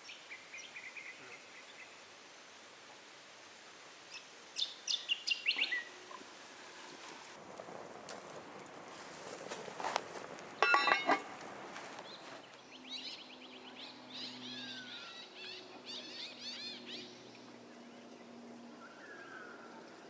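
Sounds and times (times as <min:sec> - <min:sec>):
birds chirping and twittering: 0:04.1 - 0:06.1, 0:09.4 - 0:20.0.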